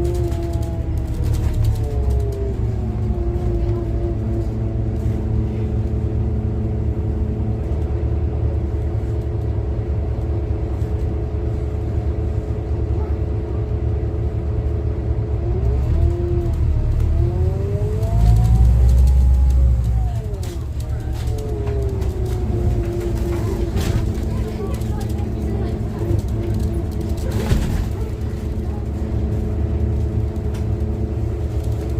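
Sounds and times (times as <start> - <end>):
bus diesel engine humming: 0.0 - 31.9
gearbox whine shifting: 15.1 - 31.9.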